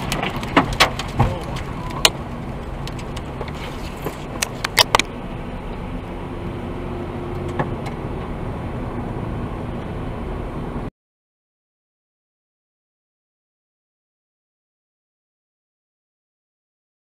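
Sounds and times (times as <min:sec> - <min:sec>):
car road and engine noise: 0:00.0 - 0:10.9.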